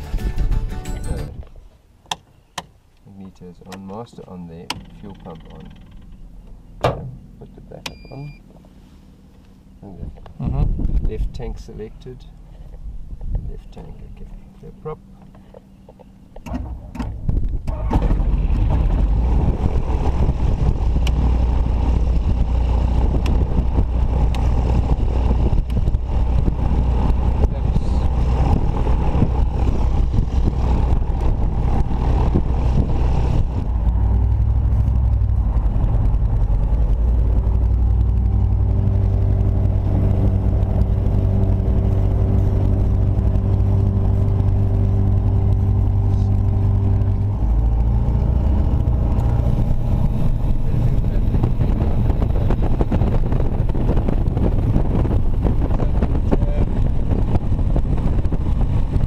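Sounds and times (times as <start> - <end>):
propeller aircraft engine running: 4.1 - 7.5, 8.4 - 59.0
aircraft engine starter cranking: 4.6 - 7.1, 16.4 - 18.9.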